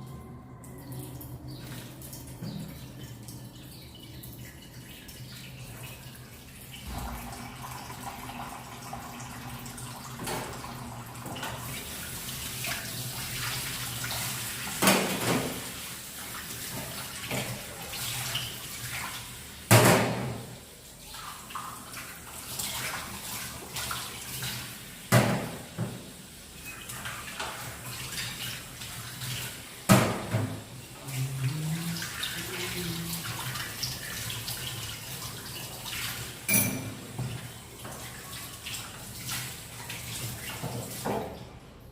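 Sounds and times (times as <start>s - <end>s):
water running from tap into sink: 1.5s - 41.6s.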